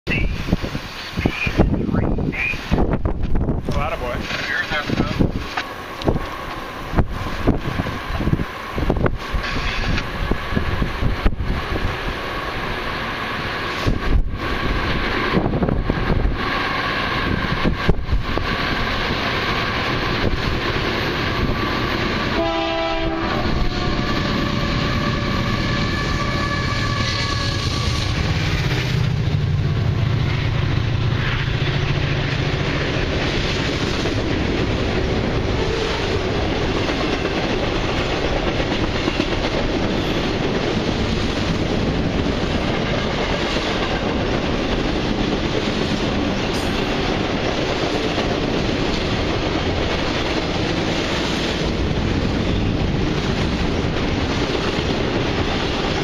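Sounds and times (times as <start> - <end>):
diesel locomotive engines rumbling: 0.0 - 56.0
train cars clattering on rails: 0.4 - 12.9, 17.2 - 56.0
train air horn blasts: 22.3 - 28.1, 35.6 - 36.3.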